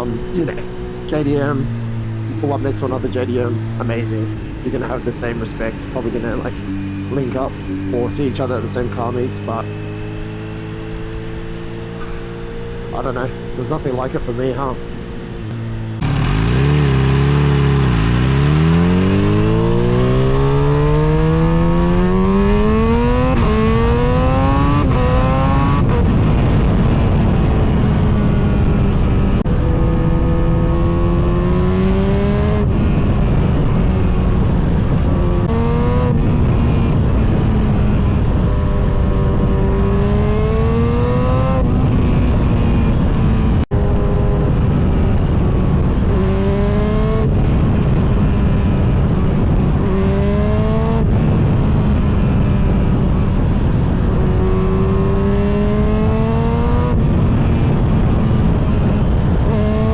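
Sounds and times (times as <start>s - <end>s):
motorcycle engine accelerating: 0.0s - 59.9s
rushing wind: 0.0s - 59.9s.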